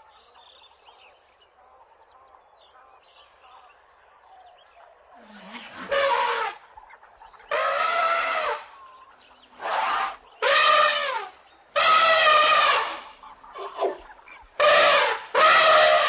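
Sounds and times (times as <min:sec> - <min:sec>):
animal calling: 0:05.2 - 0:16.0.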